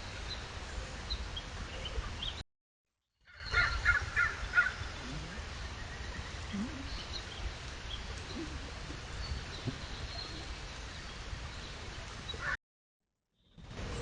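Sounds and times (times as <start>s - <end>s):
faint bird calls: 3.3s - 10.6s
background hiss: 3.8s - 12.5s.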